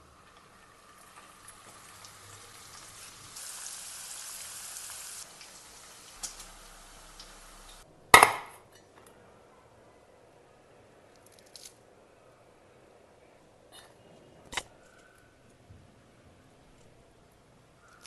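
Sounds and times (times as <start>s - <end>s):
food sizzling in hot oil: 0.0s - 7.8s.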